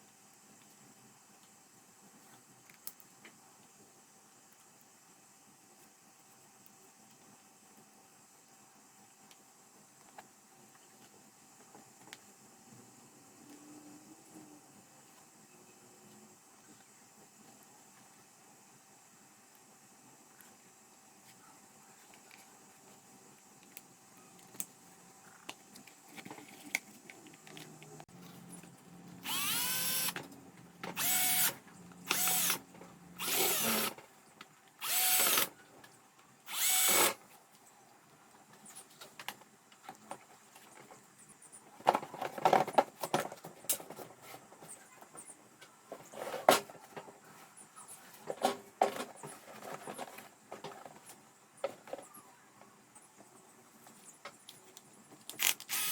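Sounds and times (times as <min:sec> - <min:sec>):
electric drill bursts: 0:29.2 - 0:30.2, 0:31.0 - 0:32.6, 0:33.2 - 0:34.0, 0:34.8 - 0:35.5, 0:36.5 - 0:37.2, 0:55.4 - 0:55.9.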